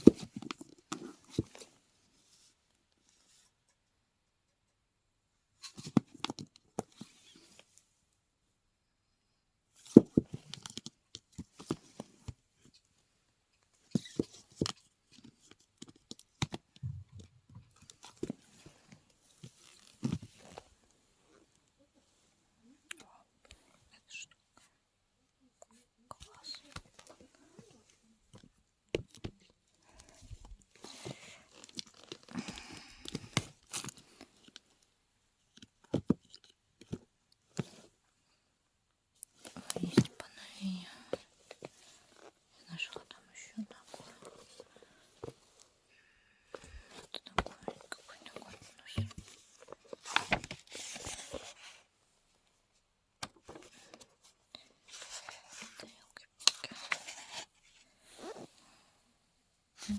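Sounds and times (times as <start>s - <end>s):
crinkling and tearing: 30.8s - 34.6s.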